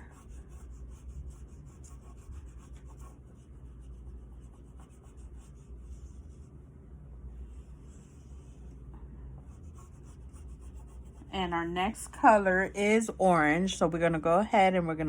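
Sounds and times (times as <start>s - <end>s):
oil pastel scratching on paper: 0.0s - 11.5s.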